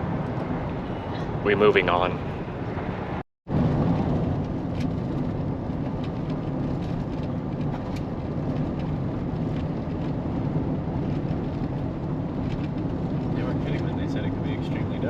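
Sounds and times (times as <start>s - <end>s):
van driving on gravel road: 3.5s - 15.0s.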